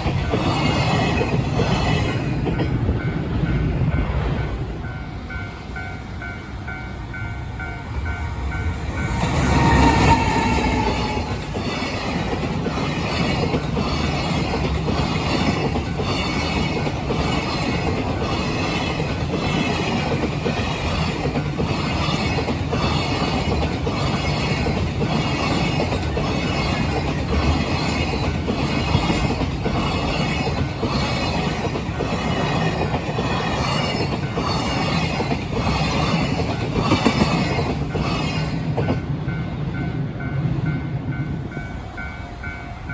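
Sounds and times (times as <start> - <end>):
locomotive passing: 0.0 - 42.9
train wheels clattering over rail joints: 9.4 - 39.0.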